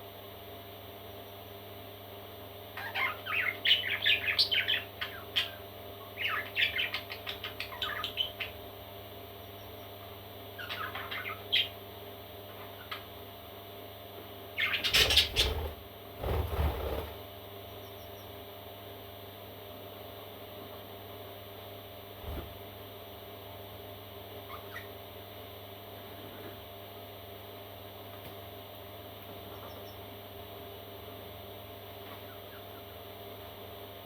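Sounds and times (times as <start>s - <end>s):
parrot chicks chirping: 2.7s - 8.7s, 9.3s - 11.9s, 14.6s - 18.4s, 24.4s - 25.0s, 29.4s - 30.1s, 32.0s - 33.0s.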